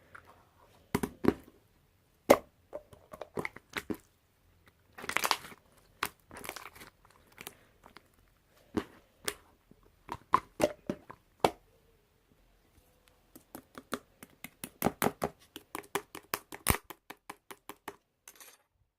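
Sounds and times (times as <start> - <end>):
hands squishing slime: 4.9 - 9.4.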